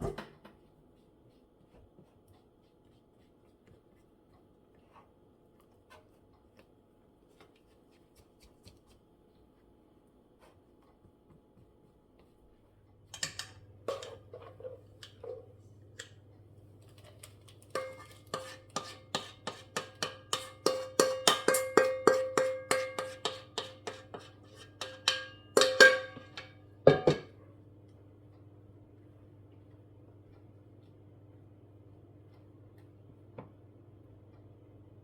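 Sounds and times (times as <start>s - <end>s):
utensil clinking on dish: 13.1s - 16.2s, 17.7s - 27.4s
low steady hum: 24.8s - 35.0s.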